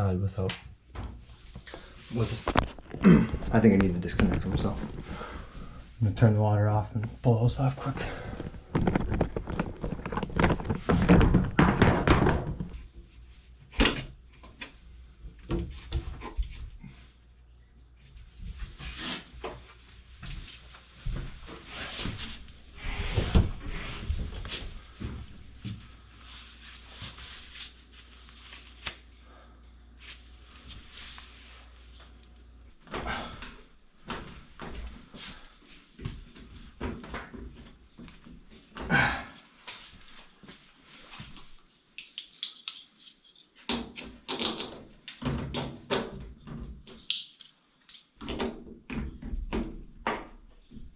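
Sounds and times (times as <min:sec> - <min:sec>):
objects knocking and scraping: 0:01.0 - 0:05.4, 0:07.9 - 0:13.0
clattering and rustling: 0:07.8 - 0:14.8.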